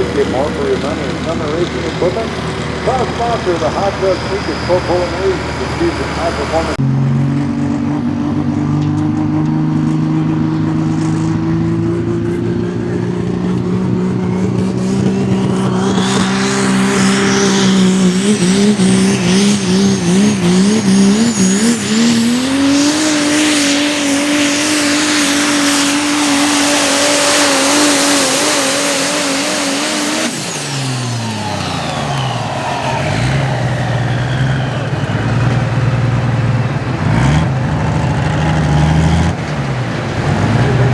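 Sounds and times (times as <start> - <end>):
high turbo whistle: 0.0 - 6.8, 13.0 - 36.3
diesel truck engine at full power: 0.0 - 40.9.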